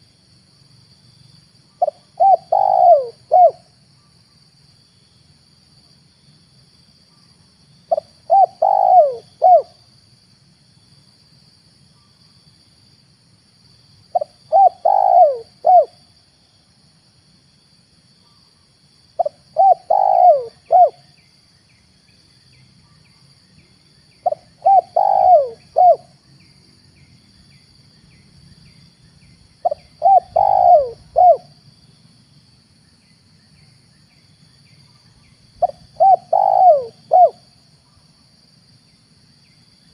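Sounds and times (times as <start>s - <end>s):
dove cooing: 1.8s - 3.7s, 7.9s - 9.8s, 14.1s - 16.0s, 19.2s - 21.1s, 24.2s - 26.1s, 29.6s - 31.6s, 35.6s - 37.4s.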